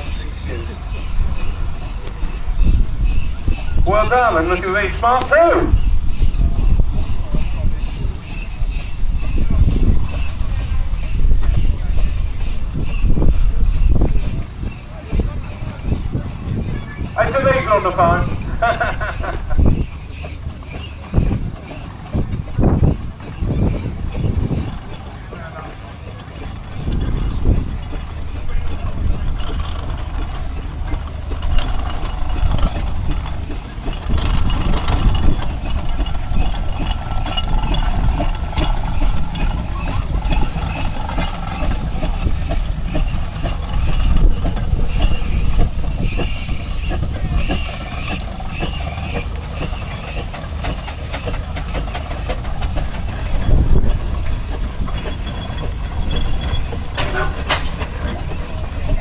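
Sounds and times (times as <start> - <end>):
steam engines rumbling: 0.0 - 59.0
background voices: 3.8 - 5.8, 14.7 - 19.6.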